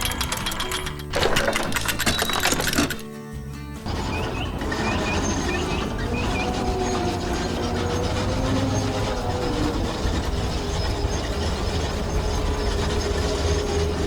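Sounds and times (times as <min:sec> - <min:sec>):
heavy machine engine rumbling: 0:03.8 - 0:14.0.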